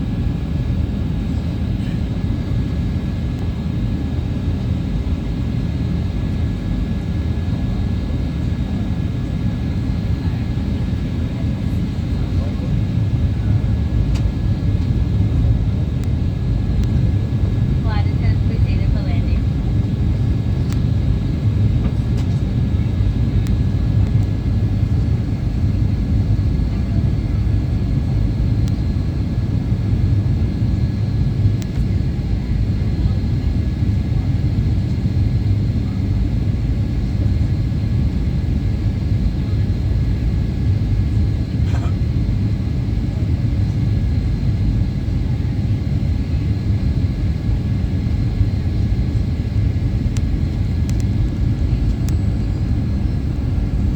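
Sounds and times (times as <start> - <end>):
aircraft cabin engine rumble: 0.0 - 53.9
faint clicks: 50.9 - 52.2.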